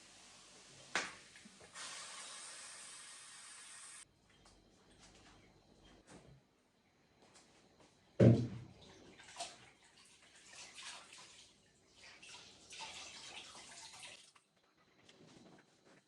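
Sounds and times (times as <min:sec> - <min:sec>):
water running and splashing: 0:09.1 - 0:14.4.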